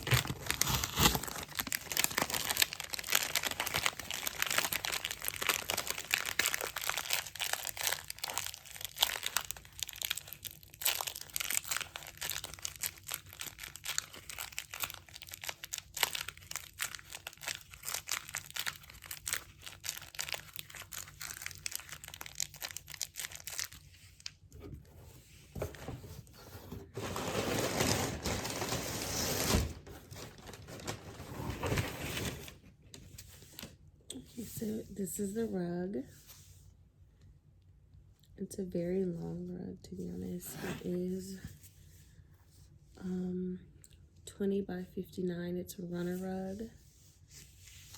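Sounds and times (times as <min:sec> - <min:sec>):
plastic packaging crinkling: 0:00.0 - 0:24.4, 0:26.9 - 0:33.8.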